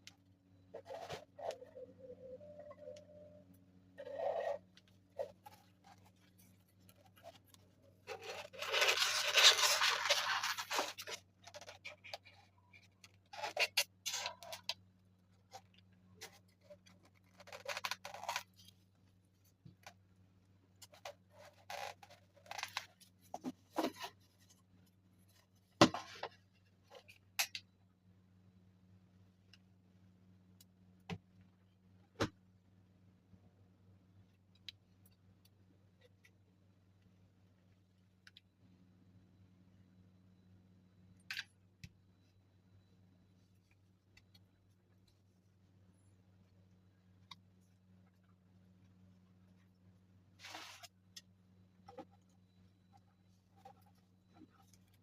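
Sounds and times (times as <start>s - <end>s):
faint low hum: 0.0s - 55.0s
scraping and scratching: 0.6s - 3.3s, 4.0s - 14.8s, 15.4s - 20.0s, 20.8s - 27.3s, 50.4s - 51.2s.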